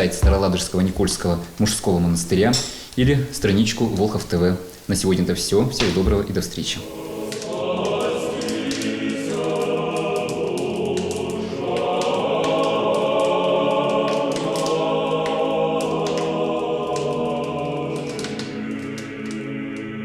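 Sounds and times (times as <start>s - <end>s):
choir singing slow chords: 6.8s - 20.0s.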